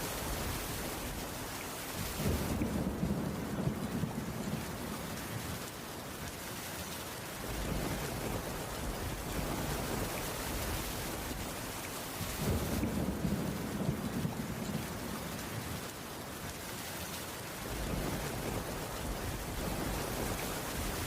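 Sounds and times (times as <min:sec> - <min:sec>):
heavy rain on wooden roof: 0:00.0 - 0:21.0.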